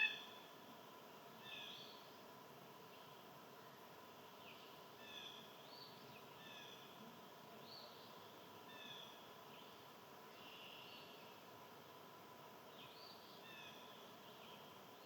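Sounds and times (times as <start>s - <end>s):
bird calling: 0.0s - 0.4s
outdoor background hiss: 0.0s - 15.0s.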